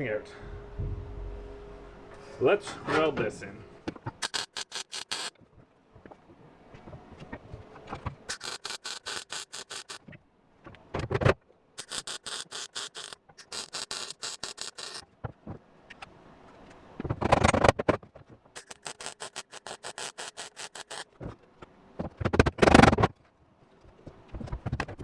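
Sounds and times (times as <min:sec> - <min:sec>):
welder crackling: 0:04.2 - 0:05.3, 0:08.3 - 0:10.0, 0:11.8 - 0:15.0, 0:18.6 - 0:21.0.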